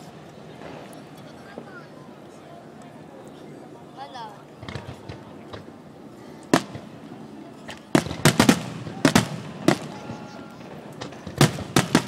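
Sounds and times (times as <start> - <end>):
fireworks bursting with sharp bangs: 0.0 - 1.8, 4.5 - 5.9, 6.5 - 12.0.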